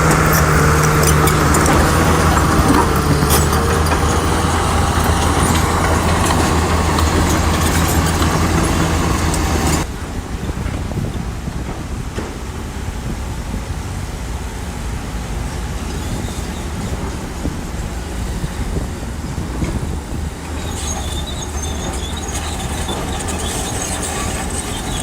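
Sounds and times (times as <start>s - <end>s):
high metallic squeal: 0.0s - 9.9s, 20.4s - 25.0s
bulldozer diesel engine rumbling: 0.0s - 25.0s.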